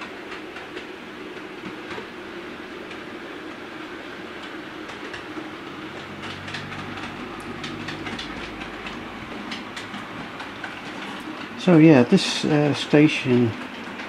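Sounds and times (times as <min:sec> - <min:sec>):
train wheels clicking over rail joints: 0:04.8 - 0:14.0.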